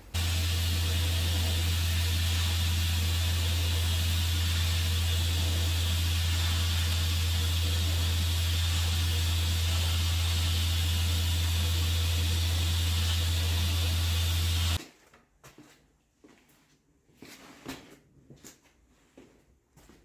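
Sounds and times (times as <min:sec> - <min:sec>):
machine humming and hissing: 0:00.0 - 0:14.8.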